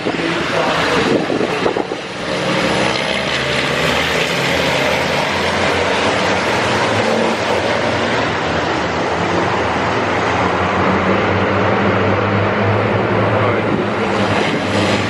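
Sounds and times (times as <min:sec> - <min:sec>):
diesel truck engines roaring: 0:00.0 - 0:15.0.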